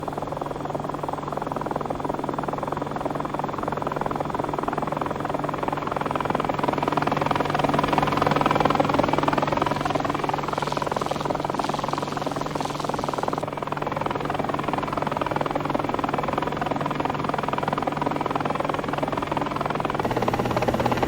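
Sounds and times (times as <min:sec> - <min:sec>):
helicopter engine tone: 0:05.2 - 0:13.8, 0:18.8 - 0:21.0
helicopter rotor chopping: 0:05.3 - 0:15.0, 0:17.3 - 0:21.0.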